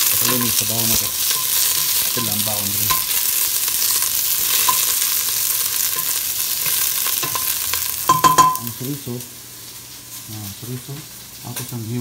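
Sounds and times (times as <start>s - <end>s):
wooden utensil stirring: 0.0s - 8.6s
onion sizzling in a pot: 0.0s - 12.0s.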